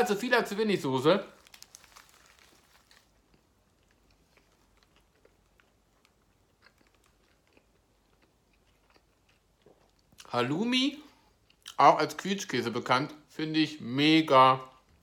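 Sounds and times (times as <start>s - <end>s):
faint chewing: 1.4s - 10.3s.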